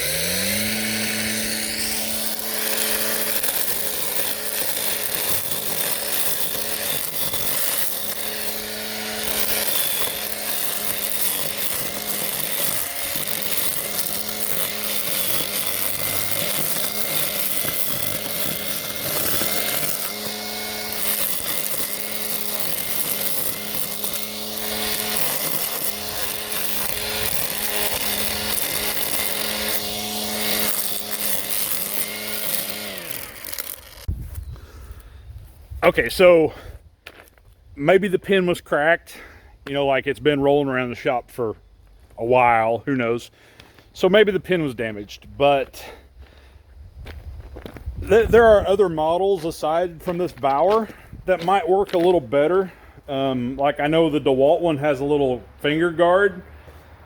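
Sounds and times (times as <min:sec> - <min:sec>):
string trimmer motor whining: 0:00.0 - 0:35.1, 0:47.5 - 0:57.0
trimmer cord cutting grass: 0:00.0 - 0:35.1, 0:47.1 - 0:57.0.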